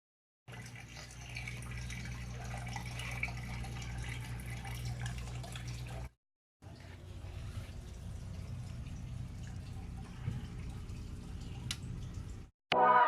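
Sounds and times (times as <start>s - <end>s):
low electrical hum: 0.5s - 12.5s
water trickling and dripping: 0.5s - 12.5s.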